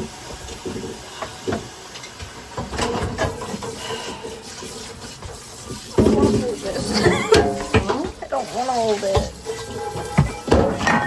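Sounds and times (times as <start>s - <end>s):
dishes and utensils knocking: 6.0s - 11.0s.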